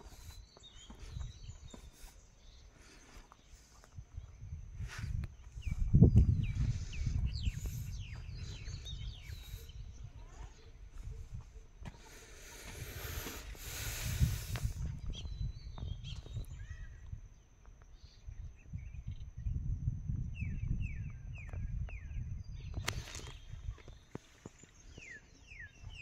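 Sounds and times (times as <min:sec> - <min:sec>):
faint high whine: 0:00.0 - 0:26.0
hiss: 0:12.0 - 0:14.8.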